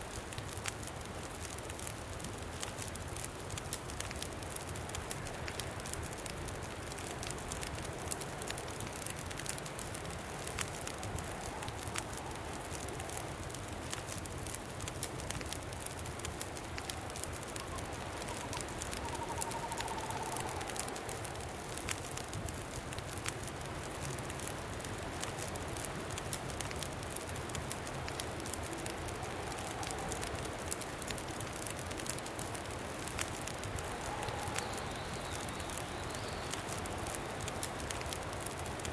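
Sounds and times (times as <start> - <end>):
campfire crackling and popping: 0.0 - 38.9
faint wind whistle: 16.5 - 22.7, 28.0 - 31.4, 32.9 - 38.9
wind rushing: 17.8 - 22.0.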